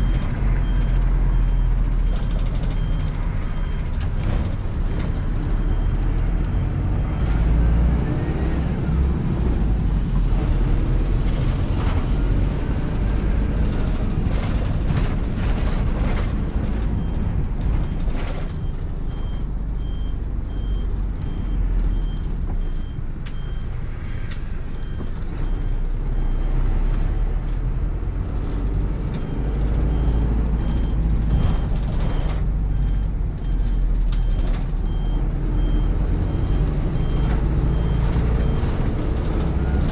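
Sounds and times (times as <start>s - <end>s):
bus engine rumble: 0.0s - 39.9s.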